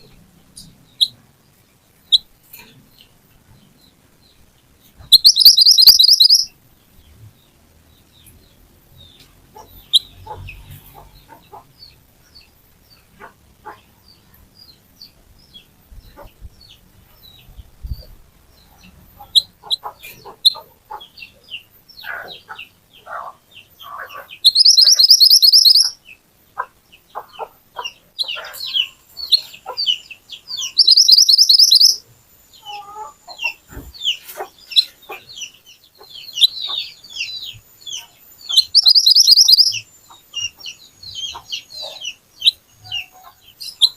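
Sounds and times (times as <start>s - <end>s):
songbird chirping and whistling: 5.0s - 6.5s, 24.1s - 26.1s, 28.2s - 43.9s
bird rapid trill: 5.1s - 6.5s, 24.0s - 26.0s, 28.2s - 32.0s, 36.2s - 43.9s.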